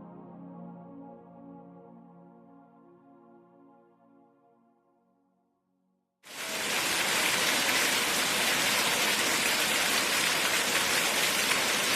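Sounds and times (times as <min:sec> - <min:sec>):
steady rain falling: 0:06.3 - 0:11.9.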